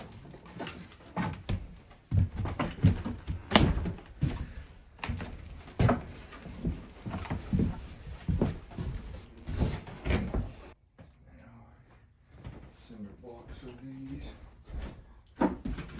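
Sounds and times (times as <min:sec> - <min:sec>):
irregular knocks and thuds: 0:00.0 - 0:10.8, 0:14.6 - 0:15.9.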